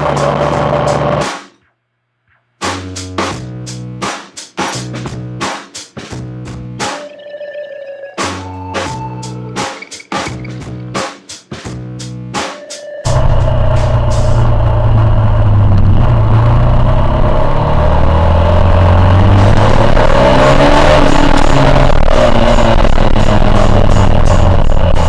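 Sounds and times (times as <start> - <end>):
motorcycle engine revving: 13.1 - 25.0.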